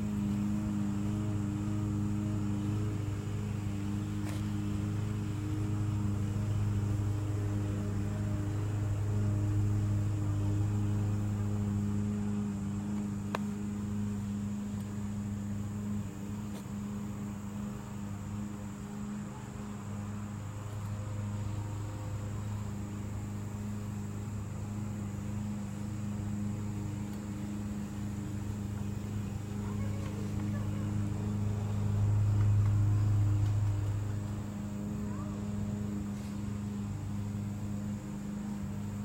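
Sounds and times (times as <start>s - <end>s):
faint high whine: 0.0s - 39.0s
low mechanical hum: 0.0s - 39.0s.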